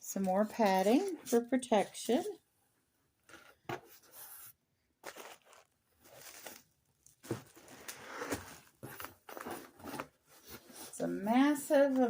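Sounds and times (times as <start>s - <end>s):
packing material rustling and tearing: 4.2s - 11.0s.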